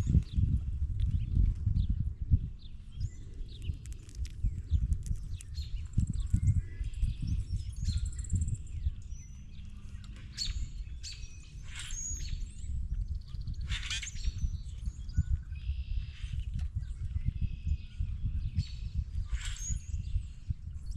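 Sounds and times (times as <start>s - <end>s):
birds chirping and calling: 2.6s - 20.9s.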